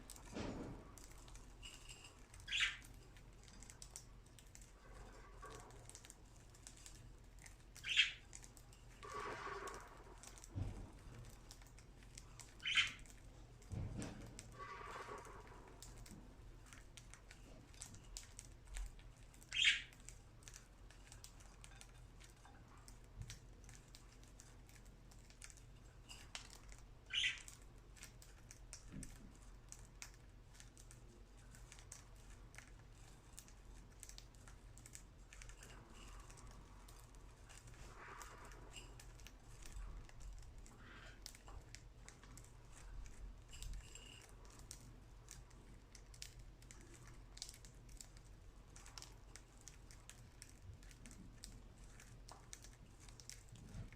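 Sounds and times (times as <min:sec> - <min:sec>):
birds pecking seed clicks: 0:00.0 - 0:53.9
bird chirps: 0:02.4 - 0:02.9, 0:07.8 - 0:08.2, 0:12.6 - 0:13.0, 0:19.5 - 0:20.0, 0:27.1 - 0:27.5.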